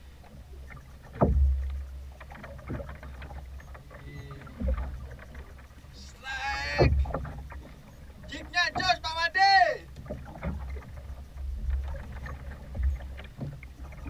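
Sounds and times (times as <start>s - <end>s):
water washing: 0.0s - 14.0s
waves thudding against boat hull: 0.0s - 14.0s
man calling out: 6.0s - 7.0s, 8.3s - 9.9s.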